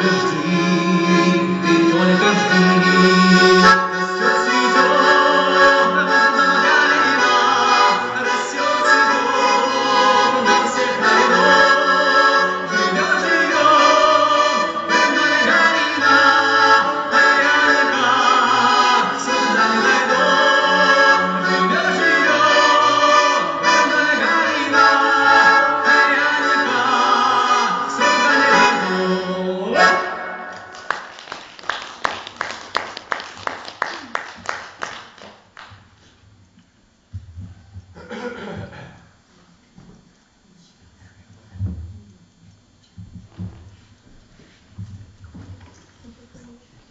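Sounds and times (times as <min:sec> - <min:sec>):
person singing: 0:00.0 - 0:30.6
accordion: 0:00.0 - 0:30.8.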